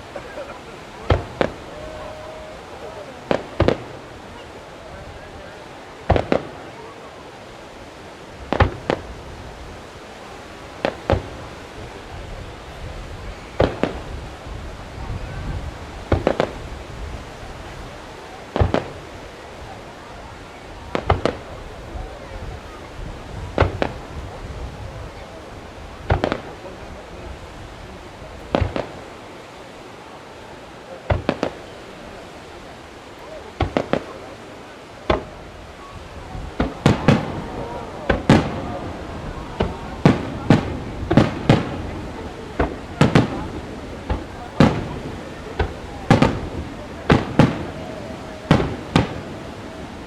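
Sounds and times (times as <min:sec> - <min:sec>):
firework shells bursting: 0:00.0 - 0:02.0, 0:02.6 - 0:04.6, 0:06.0 - 0:06.7, 0:08.4 - 0:09.2, 0:16.1 - 0:16.7, 0:26.0 - 0:26.6, 0:28.5 - 0:29.1, 0:31.1 - 0:31.8, 0:33.5 - 0:34.4, 0:35.0 - 0:47.8, 0:48.5 - 0:49.6
firework hiss: 0:00.0 - 0:50.0.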